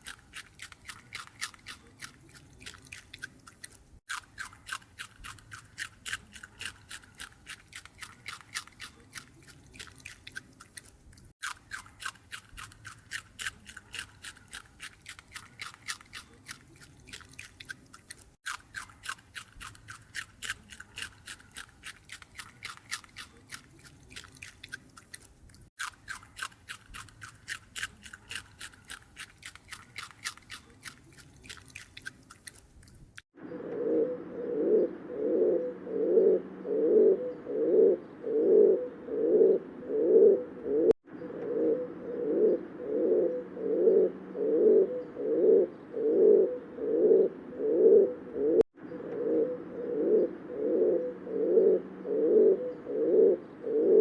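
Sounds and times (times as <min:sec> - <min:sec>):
low cooing bird call: 0:33.4 - 0:54.0.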